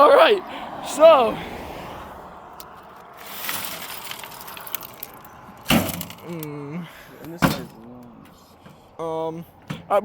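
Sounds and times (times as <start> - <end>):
light clinking and rattling: 2.9 - 6.5.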